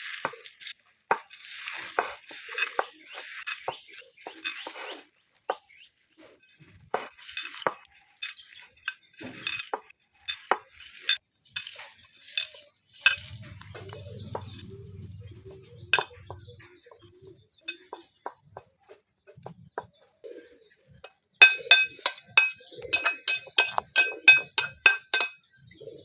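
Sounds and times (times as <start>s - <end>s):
metal utensils scraping cookware: 1.1s - 5.1s, 6.2s - 16.9s, 17.6s - 18.3s, 21.0s - 25.5s.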